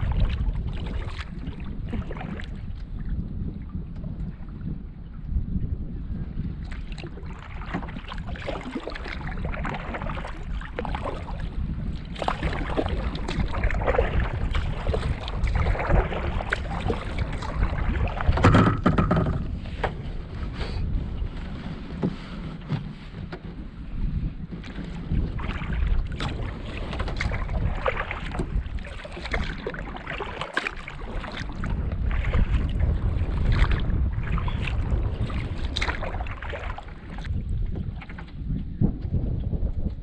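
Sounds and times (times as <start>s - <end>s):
water splashing and lapping: 0.0s - 4.9s, 6.4s - 39.1s
wind rumbling on microphone: 0.0s - 40.0s
canoe bump: 12.1s - 20.2s, 21.4s - 23.5s.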